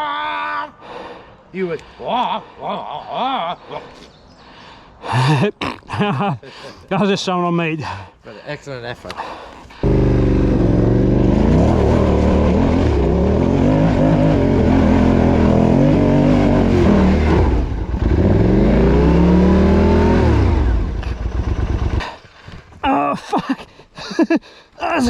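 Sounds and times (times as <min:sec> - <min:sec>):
motorcycle engine revving: 0:09.8 - 0:22.2.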